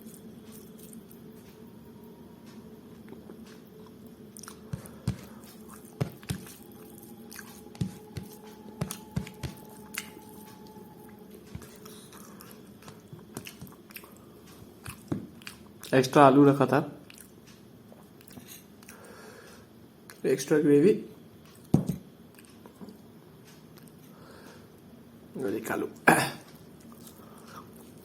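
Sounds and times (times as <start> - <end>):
person chewing food: 0.0 - 1.6, 2.9 - 15.9, 17.0 - 19.1, 26.5 - 28.0
low steady hum: 0.0 - 28.0.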